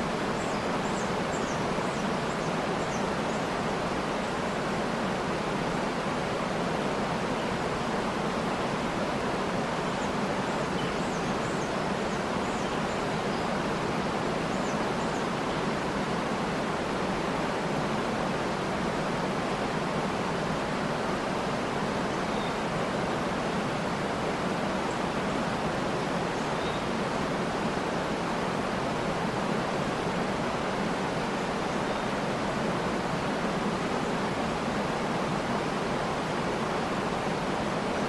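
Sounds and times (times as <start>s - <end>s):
waterfall roaring: 0.0s - 38.0s
faint bird chirps: 22.2s - 23.6s, 26.4s - 27.0s.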